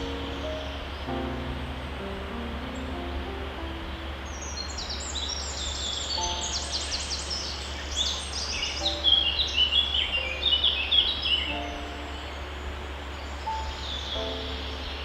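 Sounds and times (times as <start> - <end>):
soft low notes: 0.0 - 5.2, 11.5 - 15.0
songbirds chirping: 0.0 - 15.0
steady low hum: 0.0 - 15.0.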